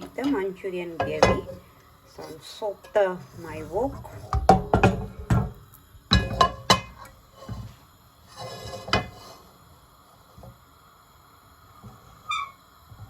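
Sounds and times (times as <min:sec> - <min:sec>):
metal cookware clanking: 0:00.0 - 0:01.6, 0:02.8 - 0:07.6, 0:08.4 - 0:09.4.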